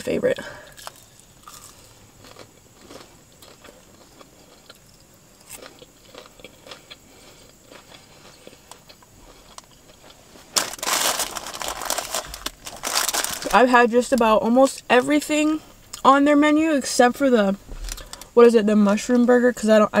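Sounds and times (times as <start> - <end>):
person chewing food: 0.4 - 10.6.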